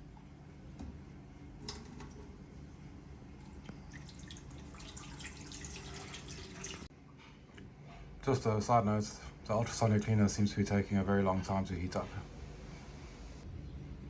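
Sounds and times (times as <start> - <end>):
water trickling and dripping: 3.4 - 6.9.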